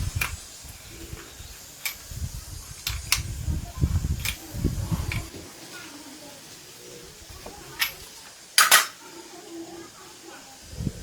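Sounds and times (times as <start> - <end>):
sharp clicks: 1.8 - 2.1, 2.8 - 3.3.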